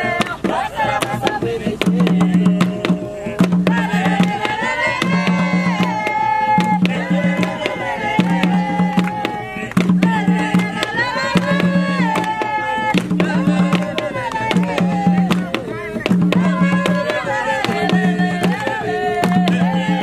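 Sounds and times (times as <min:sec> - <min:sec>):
hand drums beating: 0:00.0 - 0:20.0
voices singing held notes: 0:00.0 - 0:20.0
sharp slaps and claps: 0:05.8 - 0:19.9.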